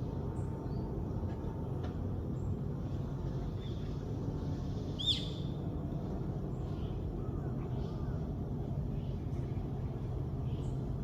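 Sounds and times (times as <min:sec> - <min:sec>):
steady low rumble: 0:00.0 - 0:11.0
birds chirping: 0:05.0 - 0:05.6.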